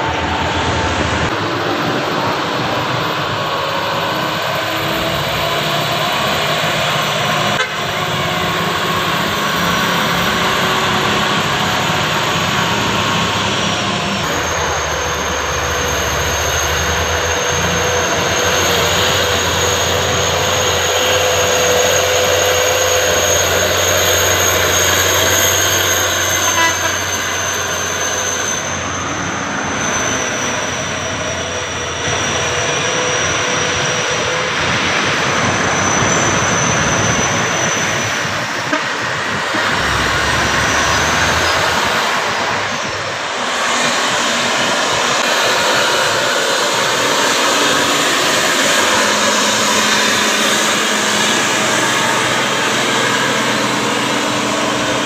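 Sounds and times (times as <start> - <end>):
truck engine running: 0.0 - 55.0.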